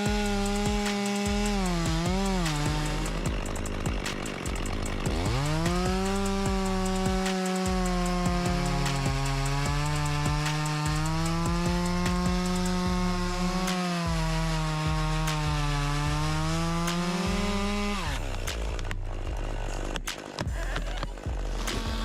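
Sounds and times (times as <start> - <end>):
sharp knocks: 0.0 - 12.9
chainsaw engine cutting: 0.0 - 22.0.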